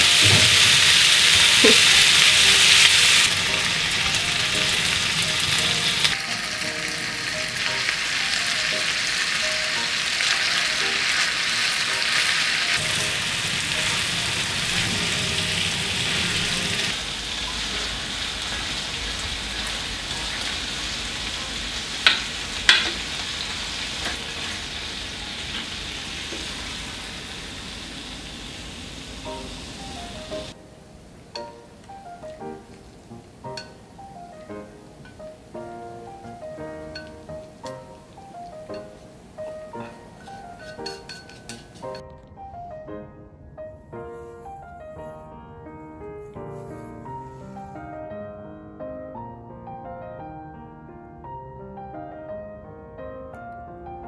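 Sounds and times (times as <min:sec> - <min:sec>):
meat and tofu sizzling in a pan: 0:00.0 - 0:30.6
chopsticks stirring sauce: 0:39.7 - 0:42.0.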